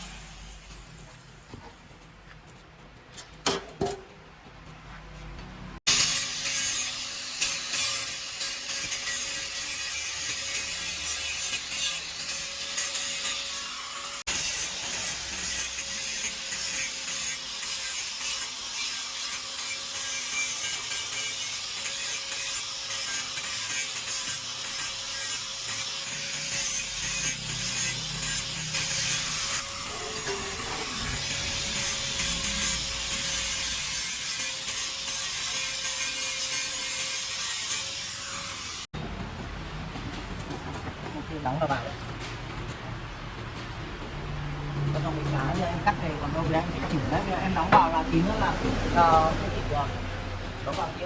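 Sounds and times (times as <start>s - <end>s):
harsh rasping metal cutting: 5.9s - 38.9s.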